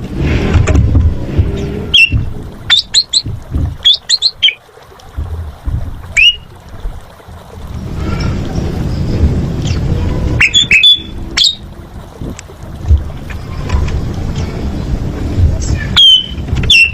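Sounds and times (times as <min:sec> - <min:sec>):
wind rumble on microphone: 0:00.0 - 0:16.9
starling whistled calls: 0:03.8 - 0:04.6, 0:06.2 - 0:06.4, 0:10.4 - 0:11.6, 0:15.7 - 0:16.9.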